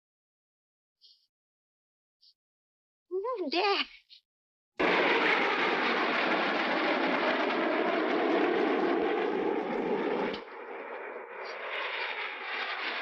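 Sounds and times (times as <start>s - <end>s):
jet engines roaring in flight: 4.8s - 13.0s.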